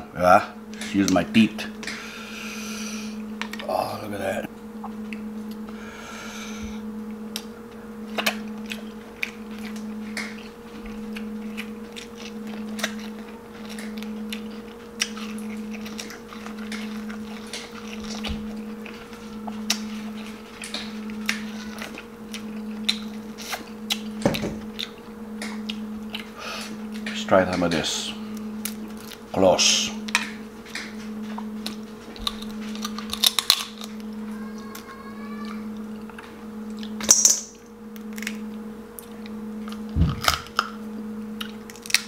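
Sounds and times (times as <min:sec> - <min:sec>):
low pulsing hum: 0:00.0 - 0:42.0
biting and chewing: 0:08.1 - 0:27.1, 0:30.1 - 0:34.9, 0:41.4 - 0:42.0
crab shell cracking: 0:31.7 - 0:34.1, 0:41.4 - 0:42.0.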